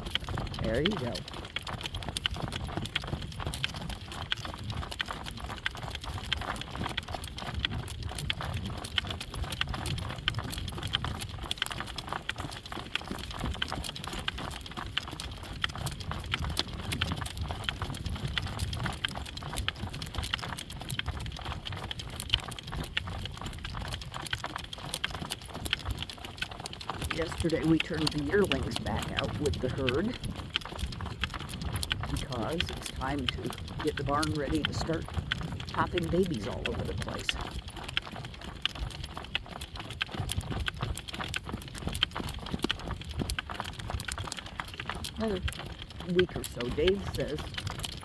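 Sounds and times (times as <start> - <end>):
horse hooves clip-clopping: 0.0 - 48.0
wind rumbling on microphone: 0.0 - 48.0.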